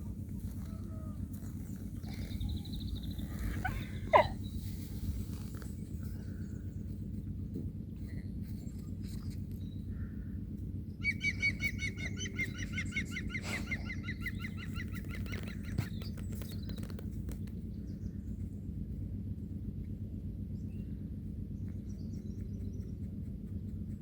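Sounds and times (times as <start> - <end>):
low rumble: 0.0 - 24.0
bird calling repeated notes: 11.0 - 16.9.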